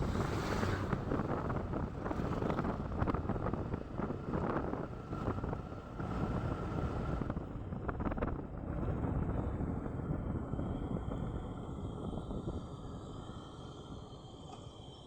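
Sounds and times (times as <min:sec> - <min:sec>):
road noise: 0:00.0 - 0:08.2
wind buffeting microphone: 0:00.0 - 0:13.2.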